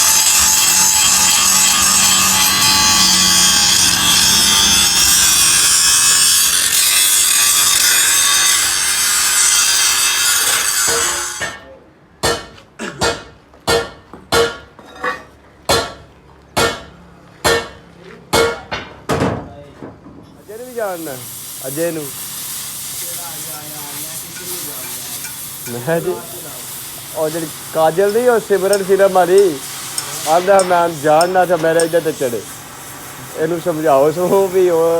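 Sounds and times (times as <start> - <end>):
power tool grinding metal: 0.0 - 11.6, 20.8 - 34.9.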